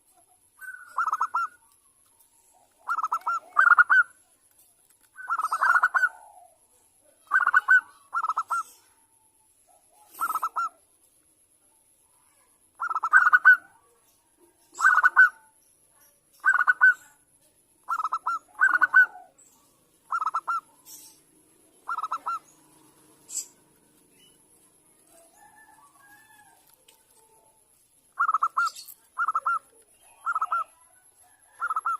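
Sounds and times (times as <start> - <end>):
dove cooing in staccato trills: 0.6 - 1.7, 2.5 - 4.2, 5.2 - 8.9, 9.9 - 10.8, 12.8 - 13.9, 14.7 - 15.5, 16.4 - 17.2, 17.8 - 19.4, 20.0 - 23.8, 28.1 - 31.9.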